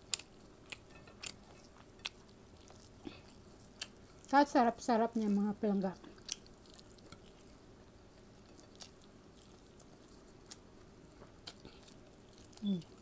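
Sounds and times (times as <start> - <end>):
quiet chewing of food: 0.0 - 4.4, 6.0 - 13.0.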